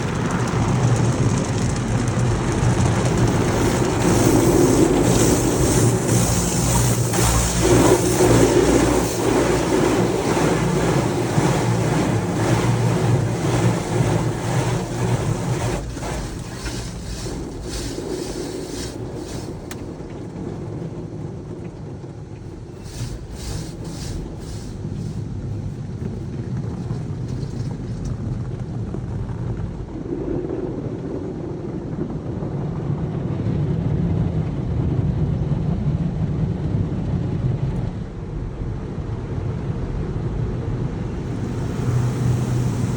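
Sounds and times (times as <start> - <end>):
low motor hum: 0.0 - 29.9, 41.0 - 42.9
rush of spraying water: 2.1 - 21.0, 22.4 - 28.2, 41.0 - 42.9
brief clicks or spurts: 3.2 - 20.2, 22.6 - 25.3.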